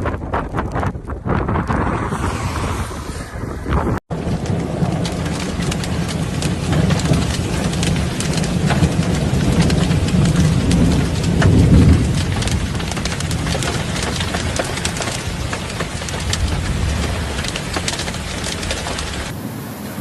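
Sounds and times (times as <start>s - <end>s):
thunder rumble: 0.0s - 20.0s
heavy rain: 4.1s - 20.0s.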